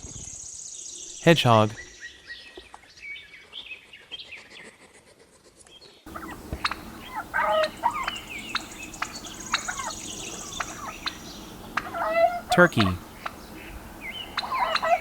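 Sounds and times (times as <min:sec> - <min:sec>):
birds chirping: 0:06.1 - 0:15.0
high steady whine: 0:06.1 - 0:15.0.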